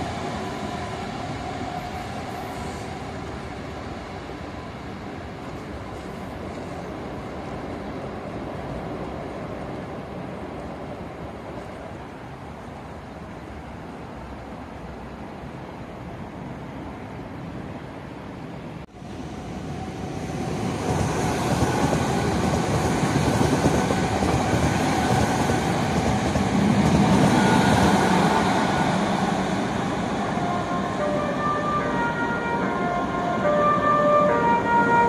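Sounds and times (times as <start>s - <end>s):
electric train rumbling past: 0.0s - 35.0s
train horn: 30.3s - 35.0s.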